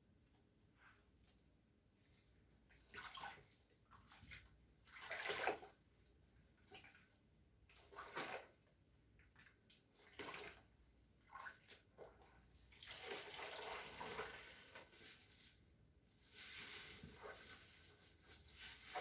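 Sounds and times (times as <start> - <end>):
water splashing and running: 12.7 - 15.4.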